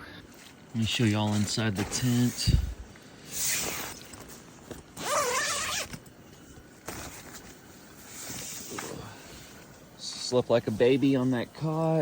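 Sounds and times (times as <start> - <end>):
tent zipper unzipping: 3.4 - 4.1, 5.0 - 6.0.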